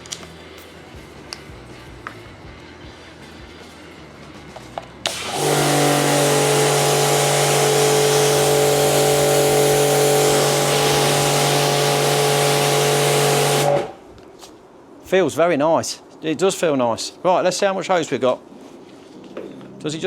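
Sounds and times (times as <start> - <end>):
pressure washer motor hum: 5.0 - 14.0
water jet hissing: 5.1 - 14.0.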